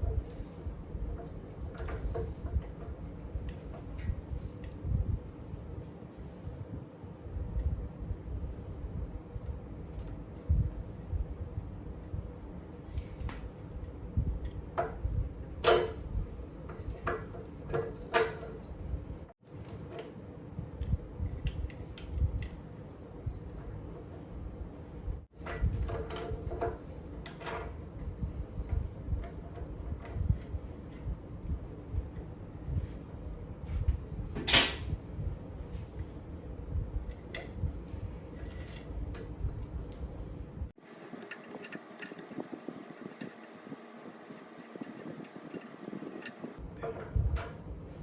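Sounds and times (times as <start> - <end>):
tools and parts clanking: 0.0 - 4.7, 14.4 - 20.2, 25.2 - 31.0, 34.3 - 35.0, 40.7 - 48.0.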